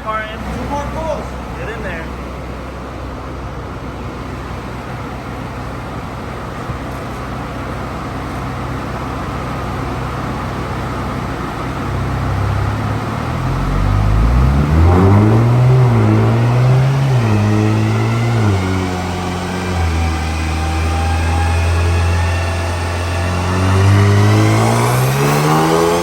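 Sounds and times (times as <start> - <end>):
steady background noise: 0.0 - 14.7
car engine revving: 9.0 - 26.0.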